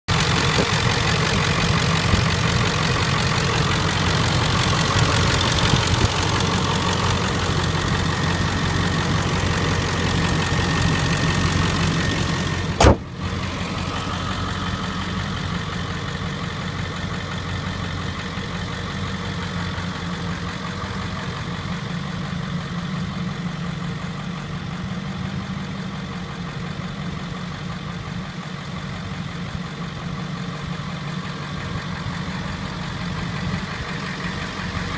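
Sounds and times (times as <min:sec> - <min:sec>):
diesel engine idling: 0:00.1 - 0:34.9
loud slam: 0:12.8 - 0:13.3.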